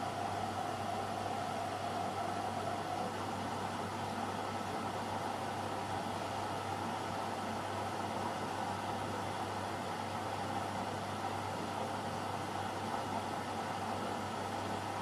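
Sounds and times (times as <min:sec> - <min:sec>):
washer-dryer hum and whir: 0:00.0 - 0:15.0.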